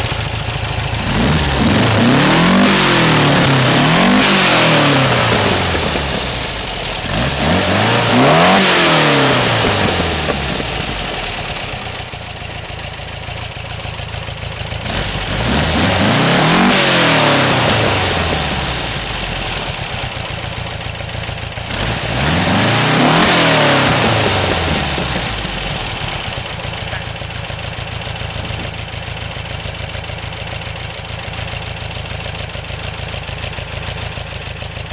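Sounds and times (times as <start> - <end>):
engine revving and idling: 0.0 - 34.9.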